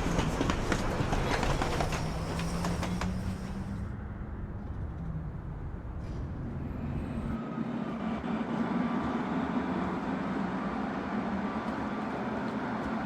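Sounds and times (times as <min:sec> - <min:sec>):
rail-joint clicks: 0:00.0 - 0:03.8.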